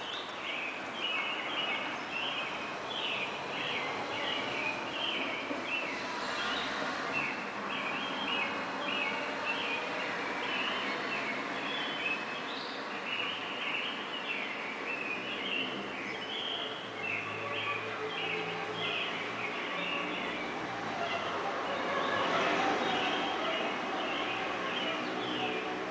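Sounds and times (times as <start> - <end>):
city noise hiss: 0.0 - 25.9
birds chirping: 10.4 - 22.2.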